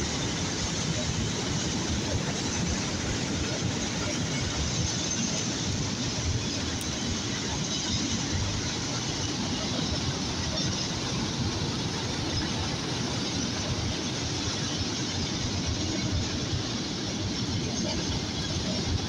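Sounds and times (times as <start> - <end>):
train rolling past: 0.0 - 19.0.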